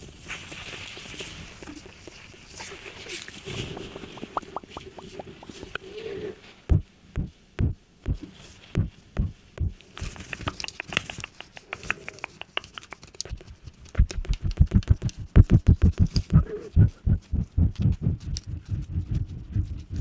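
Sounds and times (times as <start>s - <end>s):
soft taps: 6.7s - 9.8s
light quick clicks: 9.8s - 15.2s.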